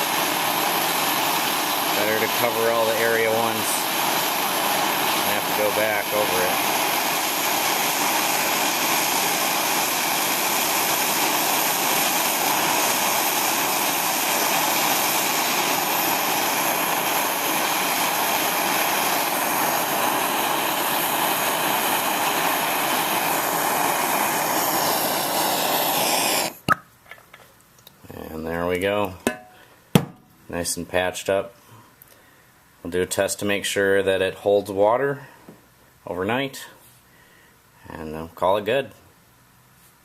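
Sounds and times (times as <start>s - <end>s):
gas torch hissing: 0.0s - 26.8s.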